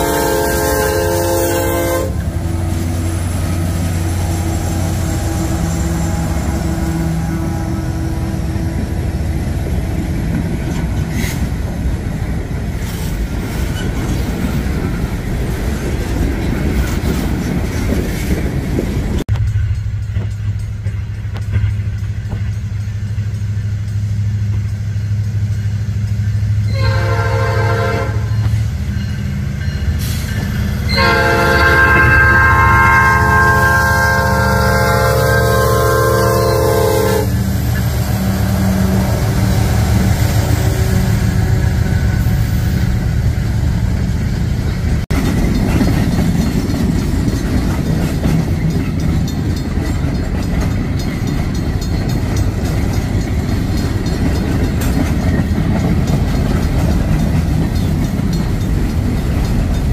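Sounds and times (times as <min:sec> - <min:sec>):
diesel locomotives rumbling: 0:00.0 - 0:59.9
wheels rushing on rail: 0:00.0 - 0:59.9
multi-chime air horn: 0:30.9 - 0:37.3.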